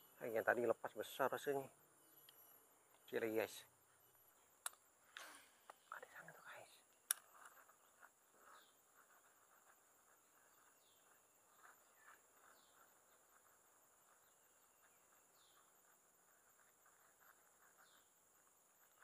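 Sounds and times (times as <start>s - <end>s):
bird chirps: 0.0s - 19.0s.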